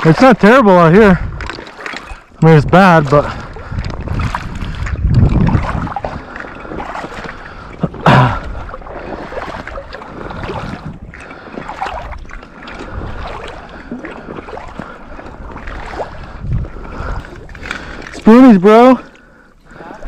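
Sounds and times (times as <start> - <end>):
water sloshing from wading: 0.0 - 20.0
wind on microphone: 1.0 - 18.2
loud splash: 4.1 - 14.9.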